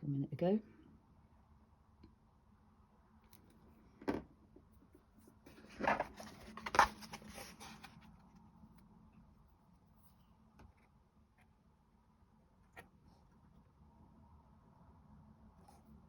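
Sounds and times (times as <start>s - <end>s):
rustling and clattering objects: 5.5s - 8.3s.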